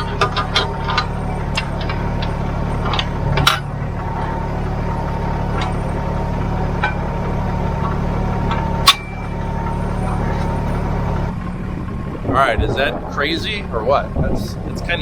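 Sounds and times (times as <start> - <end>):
sharp clicks and knocks: 0.0 - 11.3
thin steady whine: 0.0 - 15.0
tractor diesel engine running: 0.0 - 15.0.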